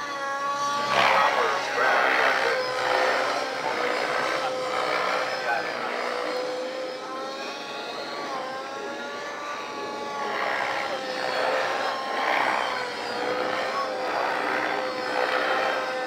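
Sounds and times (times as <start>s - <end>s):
model helicopter whine: 0.0s - 16.0s
rushes of rotor noise: 0.0s - 16.0s.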